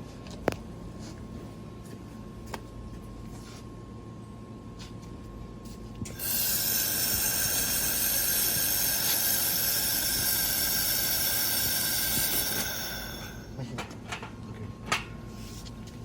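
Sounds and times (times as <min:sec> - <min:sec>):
laser welding machine hissing: 0:06.1 - 0:13.6.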